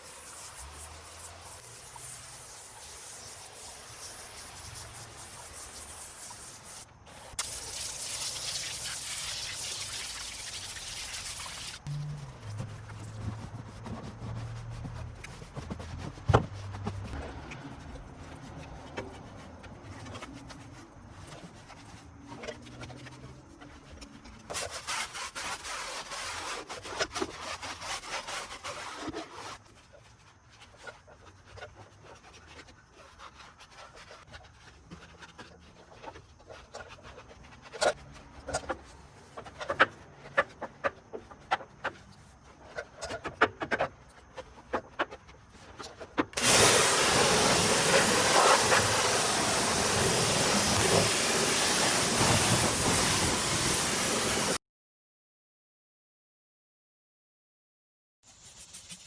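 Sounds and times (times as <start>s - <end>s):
hissing spray: 0.0s - 11.9s, 46.4s - 54.6s
scrubbing on a car wheel: 0.0s - 54.6s.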